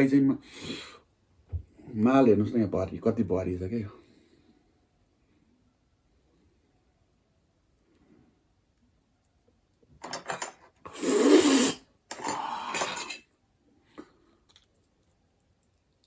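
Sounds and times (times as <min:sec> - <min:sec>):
dishes and cutlery clattering: 0:10.0 - 0:10.8, 0:12.1 - 0:13.3.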